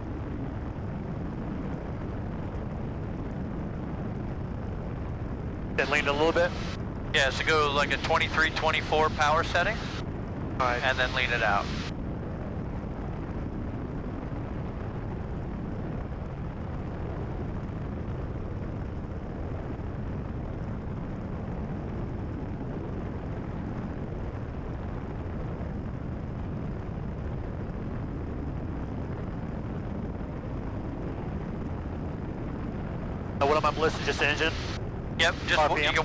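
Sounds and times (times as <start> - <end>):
aircraft engine droning: 0.0 - 12.4, 29.4 - 36.0.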